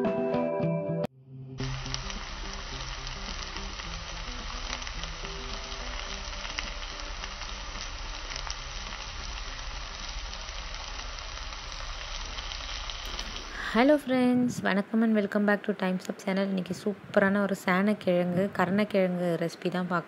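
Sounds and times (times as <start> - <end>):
food sizzling in oil: 1.6 - 15.1.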